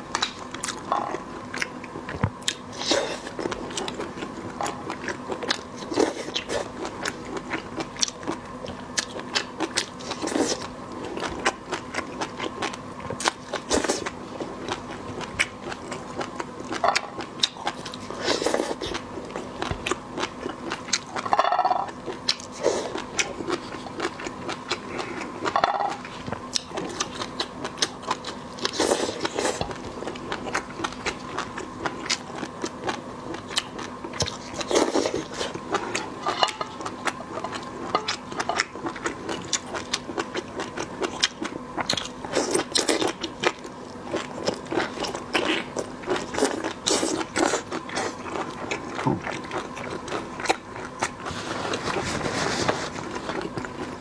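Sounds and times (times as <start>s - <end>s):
faint steady hum: 0.0s - 54.0s
seafood being crunched and chewed: 0.1s - 54.0s.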